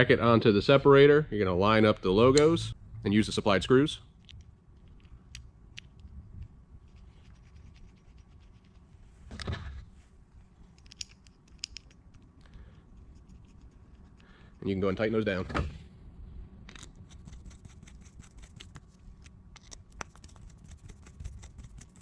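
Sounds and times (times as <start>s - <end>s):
small parts clicks and scrapes: 4.2s - 8.9s, 10.6s - 14.6s, 16.7s - 22.0s.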